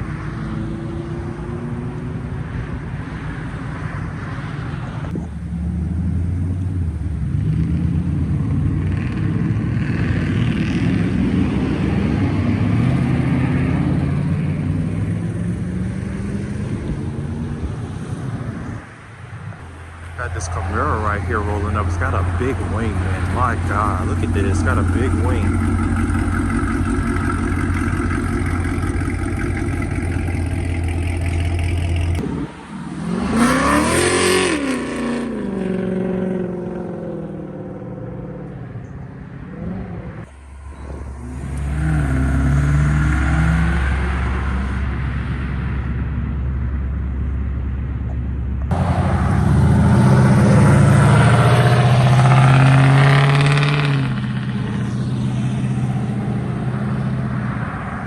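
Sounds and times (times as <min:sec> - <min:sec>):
cars pulling away: 0:00.0 - 0:58.0
car engine revving: 0:05.1 - 0:18.8, 0:19.5 - 0:58.0
car engine idling: 0:19.4 - 0:33.2, 0:40.1 - 0:42.9.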